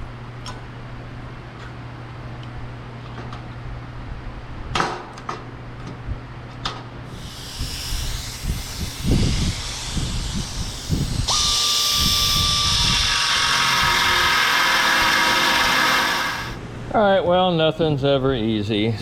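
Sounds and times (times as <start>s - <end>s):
hiss: 7.1s - 16.6s
power tool whining: 7.1s - 16.6s.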